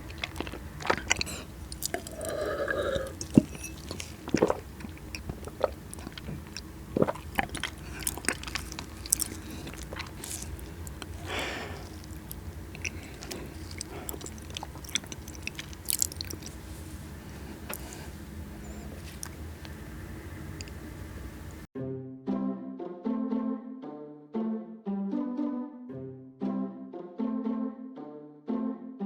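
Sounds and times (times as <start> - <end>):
wet mouth clicks and smacks: 0.0 - 16.6, 17.4 - 19.8, 20.4 - 20.8
soft chewing and biting: 0.0 - 21.7
soft hushing sound: 7.7 - 21.7.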